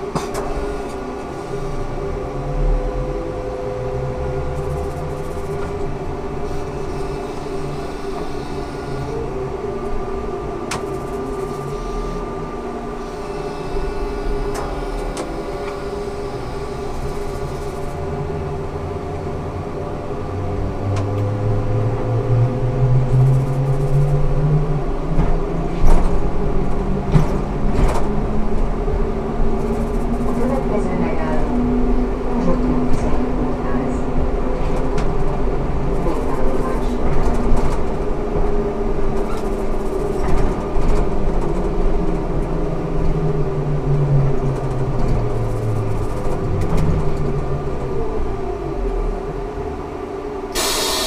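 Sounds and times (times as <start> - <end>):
trolleybus electric drive whining: 0.0 - 51.0.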